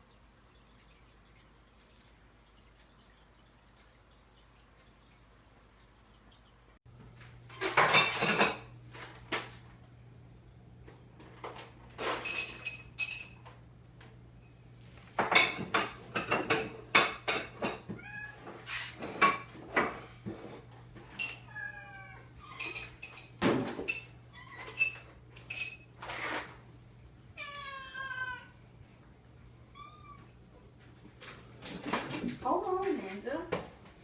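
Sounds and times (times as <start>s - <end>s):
dishes clinking and clattering: 7.0s - 9.6s, 10.9s - 13.6s, 14.4s - 26.7s, 30.0s - 34.0s
cat meowing: 27.4s - 28.6s.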